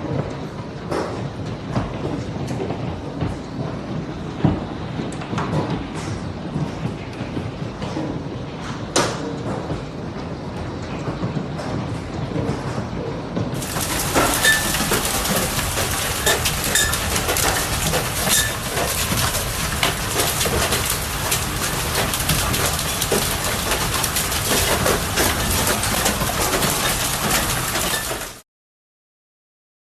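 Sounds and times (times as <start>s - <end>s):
hailstones clattering: 13.6s - 28.4s
hiss of falling ice and rain: 13.6s - 28.4s.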